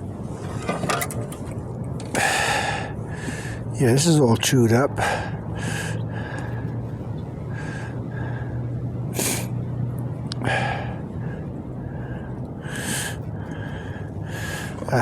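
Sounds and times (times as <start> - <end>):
steady low hum: 0.0 - 15.0
man breathing heavily: 2.1 - 3.8, 4.9 - 9.7, 10.3 - 15.0.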